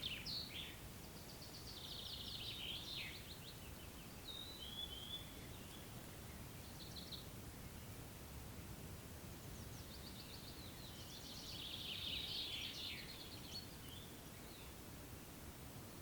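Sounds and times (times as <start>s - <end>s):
songbird singing: 0.0s - 16.0s.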